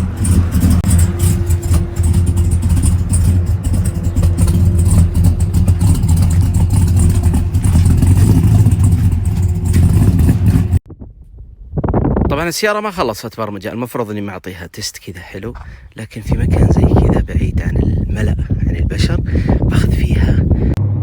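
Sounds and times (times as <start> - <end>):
car engine idling: 0.0 - 10.8, 15.5 - 21.0.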